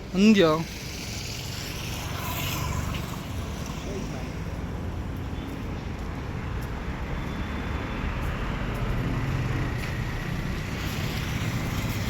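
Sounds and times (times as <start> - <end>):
road traffic rumbling: 0.0 - 12.0
vehicle passing: 0.3 - 5.0, 7.2 - 12.0.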